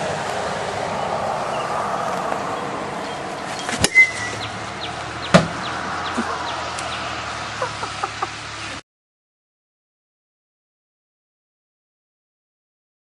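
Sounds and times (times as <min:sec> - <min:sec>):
sharp knocks: 0:05.3 - 0:05.7.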